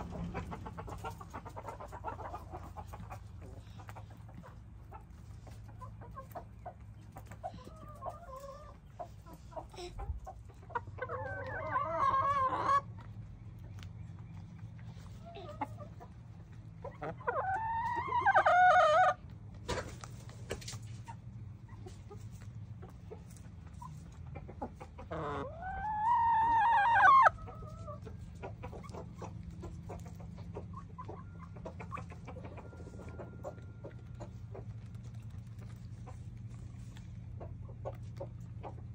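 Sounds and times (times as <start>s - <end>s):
chickens clucking: 0.0s - 38.9s
loud chicken calls: 11.0s - 12.9s, 17.0s - 19.2s, 25.0s - 28.0s.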